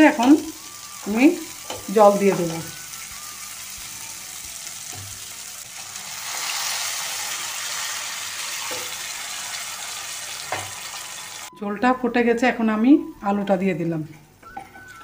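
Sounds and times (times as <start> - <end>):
paste sizzling in oil: 0.0 - 11.5
water poured into hot pan: 0.5 - 11.5.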